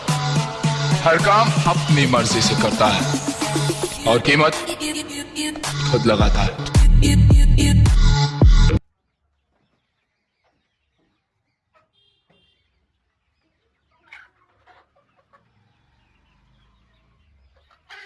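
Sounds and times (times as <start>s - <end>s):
chicken clucking: 8.9s - 18.0s.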